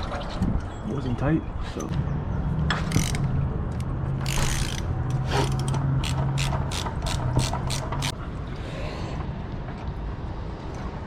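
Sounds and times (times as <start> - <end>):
ratchet wrench clicking: 2.9 - 3.3, 4.2 - 8.2.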